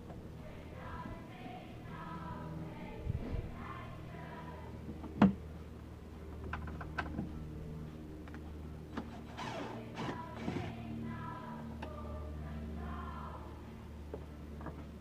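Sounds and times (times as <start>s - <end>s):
music with singing: 9.4s - 13.8s.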